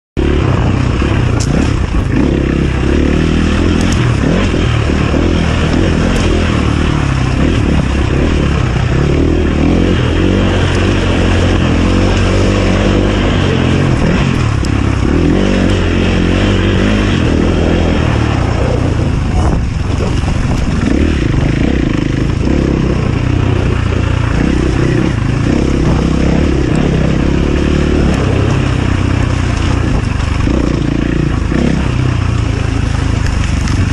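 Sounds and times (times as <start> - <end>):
dirt bike engine revving: 0.2 - 33.9.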